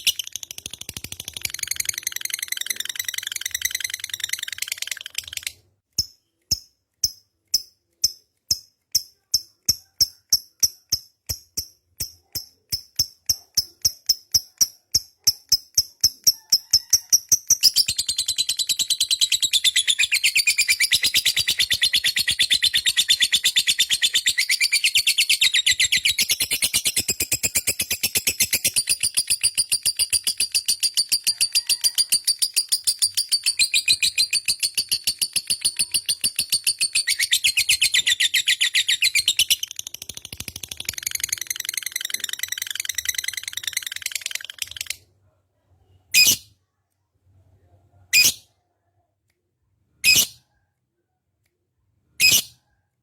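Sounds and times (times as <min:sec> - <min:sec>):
lovebird chirping and trilling: 0:00.0 - 0:45.0, 0:46.1 - 0:46.5, 0:48.1 - 0:48.4, 0:50.0 - 0:50.5, 0:52.2 - 0:52.6.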